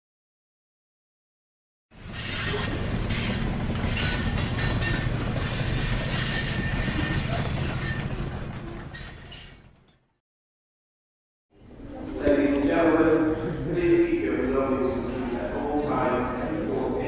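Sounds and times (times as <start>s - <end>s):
wheel squeal: 2.0s - 10.0s
train rumbling on rails: 2.0s - 10.2s.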